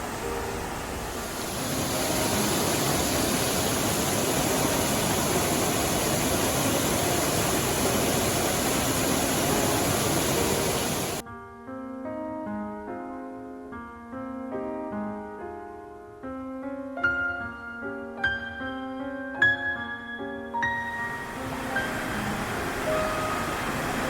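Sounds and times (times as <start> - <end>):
stream rushing over rocks: 0.0 - 11.2, 21.0 - 24.0
piano music: 0.0 - 24.0.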